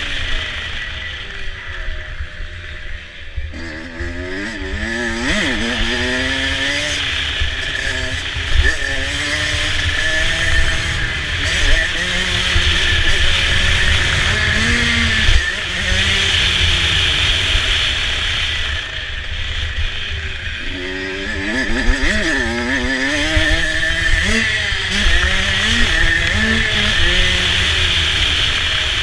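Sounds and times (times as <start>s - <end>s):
motocross bike engine revving: 0.0s - 29.0s.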